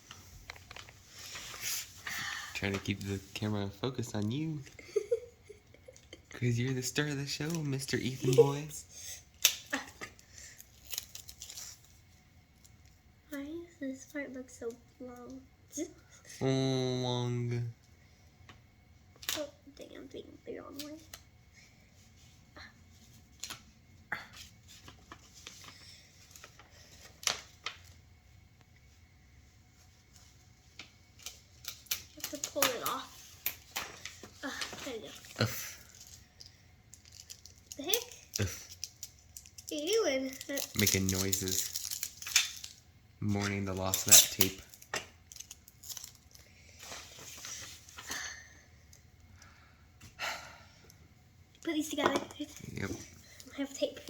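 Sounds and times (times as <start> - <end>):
paper and tape rustling: 0.1 - 4.4, 9.7 - 12.0, 24.3 - 28.0, 29.8 - 48.2.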